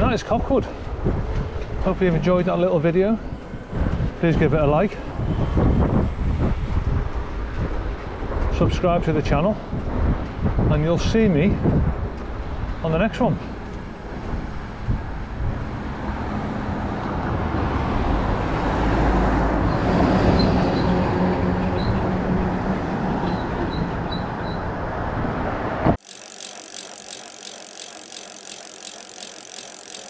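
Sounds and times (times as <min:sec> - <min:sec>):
wind and road noise: 0:00.0 - 0:02.5, 0:03.3 - 0:25.8
faint high chirps: 0:26.0 - 0:30.0
hissy pulsing sound: 0:26.0 - 0:30.0.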